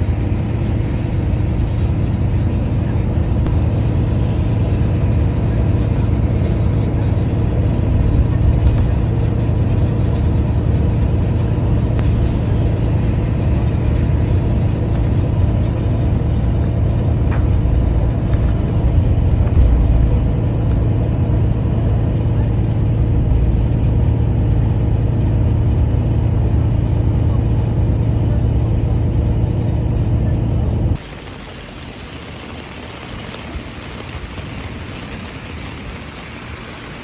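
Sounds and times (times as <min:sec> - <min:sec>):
vehicle engine and road noise: 0:00.0 - 0:37.0
tyres hissing on wet road: 0:31.0 - 0:37.0.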